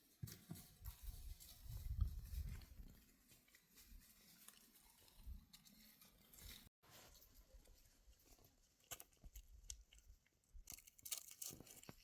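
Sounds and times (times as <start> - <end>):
faint clicks and rustles: 0.0 - 12.0.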